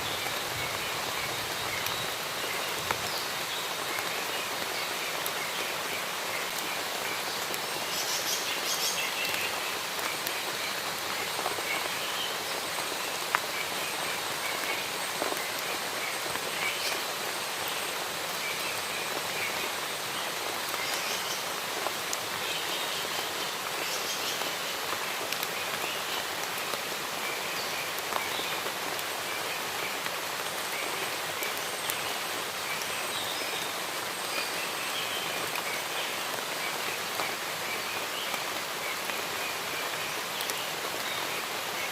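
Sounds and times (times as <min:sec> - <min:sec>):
rain falling in a forest: 0:00.0 - 0:41.9.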